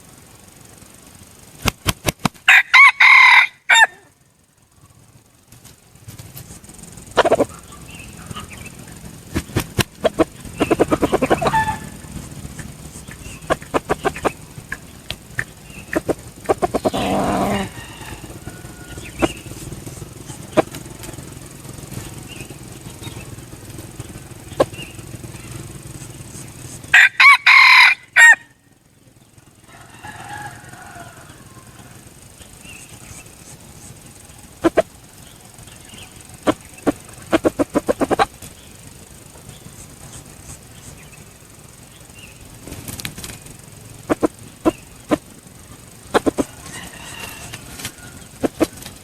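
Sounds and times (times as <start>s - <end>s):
fluttering wing flaps: 0.8s - 2.5s, 5.4s - 27.0s, 29.8s - 41.1s, 42.2s - 45.4s, 46.0s - 49.0s
rooster crowing: 2.5s - 4.2s, 10.0s - 14.5s, 15.6s - 21.6s, 26.8s - 28.6s, 29.5s - 32.3s, 46.1s - 49.0s
chicken clucks: 7.1s - 26.8s, 34.5s - 35.0s, 35.6s - 38.6s, 44.0s - 45.3s, 46.0s - 49.0s.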